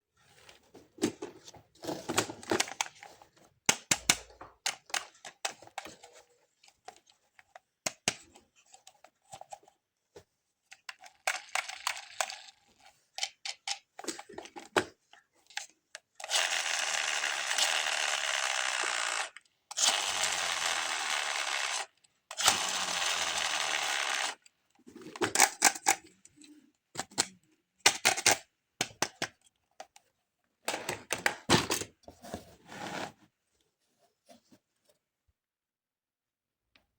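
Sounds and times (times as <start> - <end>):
clicks taps and rustles of toys: 1.0 - 12.5, 13.1 - 16.2, 24.8 - 30.1.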